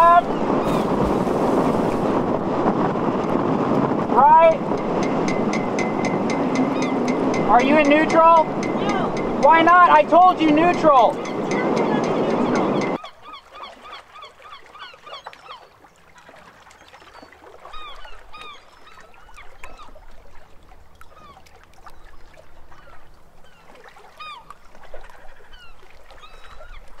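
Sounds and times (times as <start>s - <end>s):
birds squawking: 6.4s - 7.5s, 11.1s - 15.2s.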